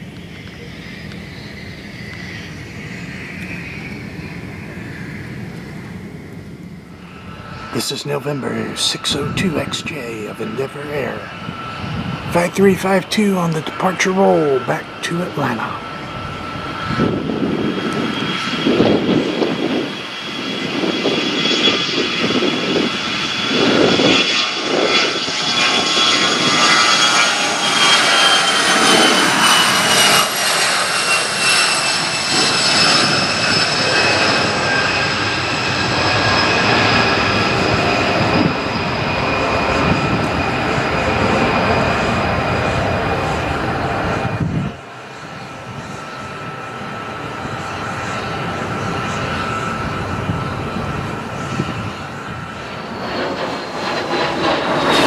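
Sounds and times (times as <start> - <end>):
jet engines roaring with high whine: 0.0 - 55.0.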